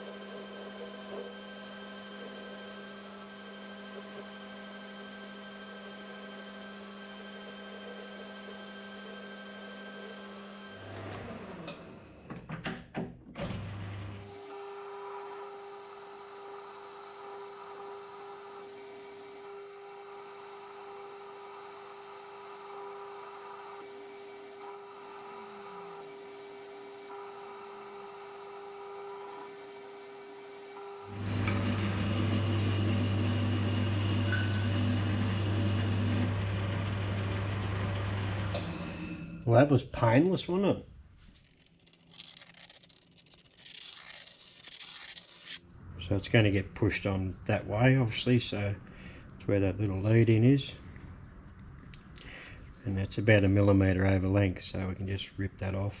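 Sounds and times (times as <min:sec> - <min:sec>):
metal lathe cutting: 0:00.0 - 0:11.0, 0:14.2 - 0:39.0.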